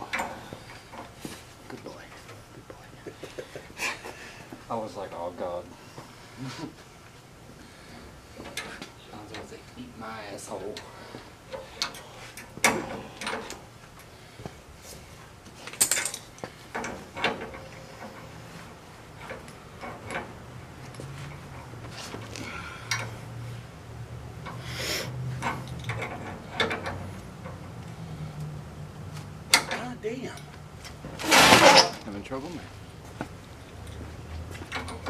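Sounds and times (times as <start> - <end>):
hand tool clinking on copper tubing: 15.7 - 18.3.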